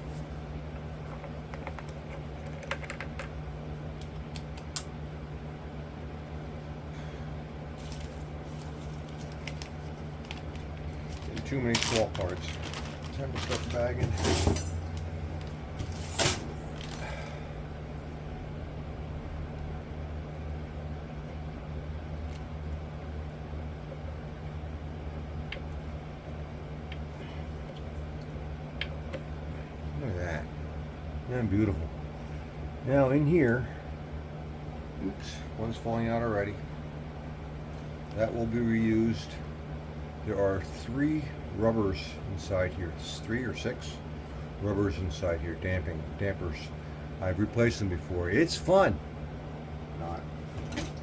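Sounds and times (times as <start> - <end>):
steady low hum: 0.0 - 51.0
small metal parts clinking: 4.0 - 5.2.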